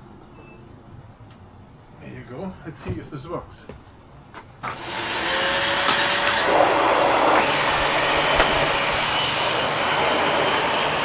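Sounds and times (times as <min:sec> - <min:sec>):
vacuum cleaner motor running: 0:04.6 - 0:11.0.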